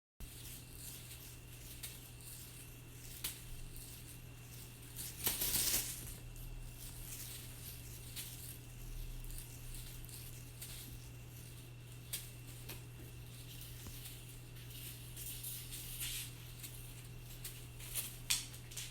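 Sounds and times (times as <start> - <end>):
cat toy rattling and clicking: 0.2 - 18.9
low electrical hum: 0.2 - 18.9.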